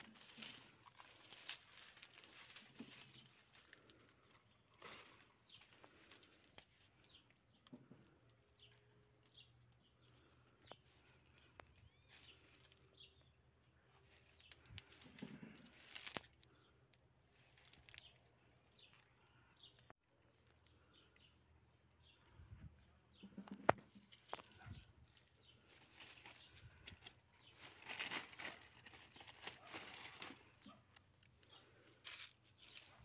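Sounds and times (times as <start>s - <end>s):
rustle of leaves: 0.0s - 4.0s, 14.1s - 16.4s, 25.6s - 30.5s, 32.0s - 33.0s.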